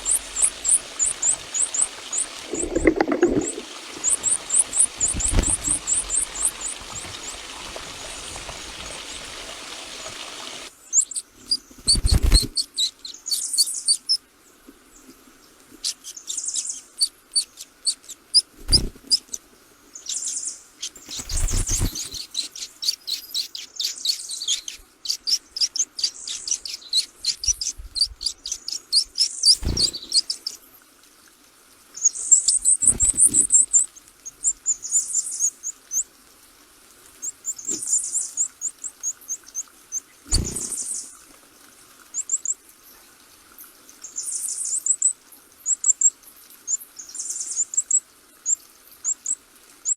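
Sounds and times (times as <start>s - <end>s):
small birds chirping: 0.0s - 14.2s, 20.0s - 30.8s, 32.0s - 36.1s, 37.2s - 41.2s.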